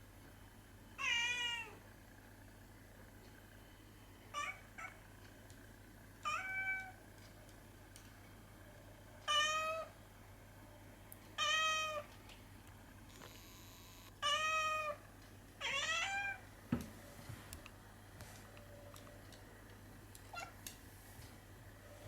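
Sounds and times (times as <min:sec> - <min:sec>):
cat meowing: 0:01.0 - 0:01.8, 0:06.2 - 0:06.9, 0:09.3 - 0:09.9, 0:11.4 - 0:12.0, 0:14.2 - 0:15.0, 0:15.6 - 0:16.4.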